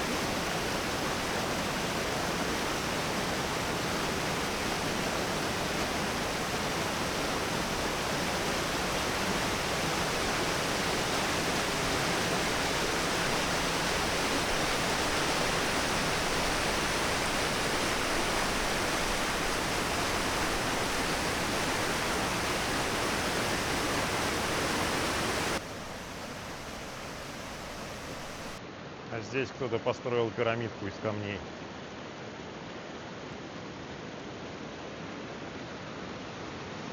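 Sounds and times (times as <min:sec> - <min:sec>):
waterfall rushing: 0:00.0 - 0:28.6.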